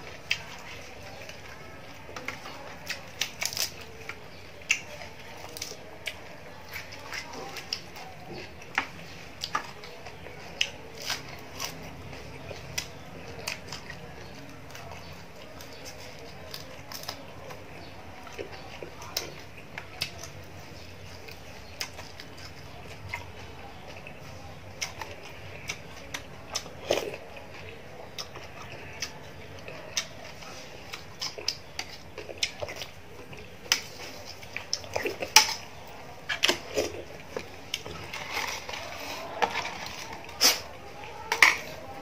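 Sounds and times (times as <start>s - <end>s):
chewing crispy food: 0.0s - 42.0s.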